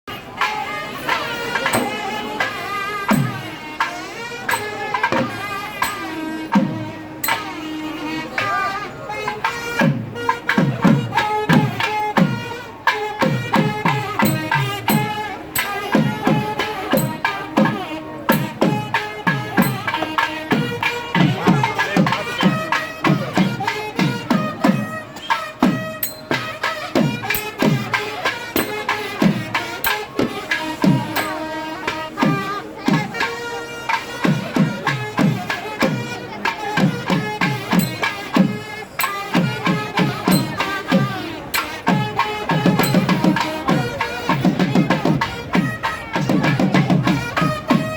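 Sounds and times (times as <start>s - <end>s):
sustained melody: 0.8s - 8.4s, 24.1s - 34.2s, 36.0s - 44.2s
fast drumming: 13.2s - 25.0s, 25.6s - 33.2s, 36.8s - 47.9s.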